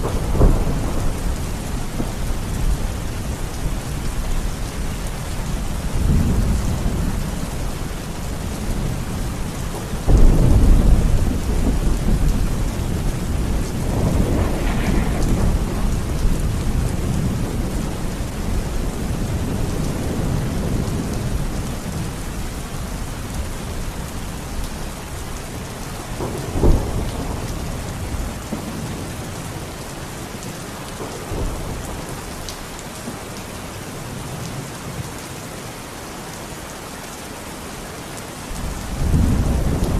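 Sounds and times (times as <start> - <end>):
thunder rumbling: 0.0 - 23.8, 26.0 - 32.4, 38.6 - 39.9
heavy rain: 0.0 - 39.9.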